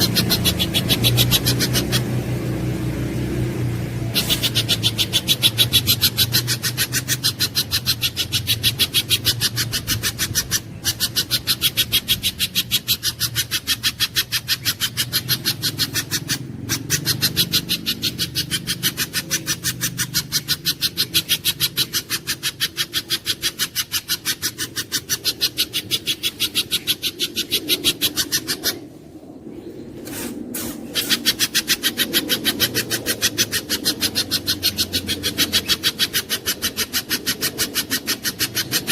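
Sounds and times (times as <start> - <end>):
bird calling sharp chip notes: 0.0 - 28.9.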